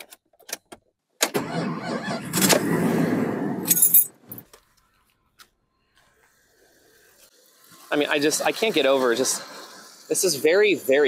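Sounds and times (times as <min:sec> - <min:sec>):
car engine cranking and starting: 0:01.2 - 0:04.8
keys jangling: 0:03.7 - 0:04.4.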